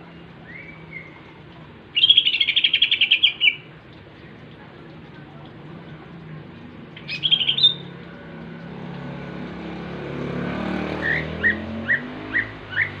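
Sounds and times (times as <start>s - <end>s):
passing motor vehicle hum: 0.0s - 13.0s
bird singing high notes: 7.0s - 7.9s.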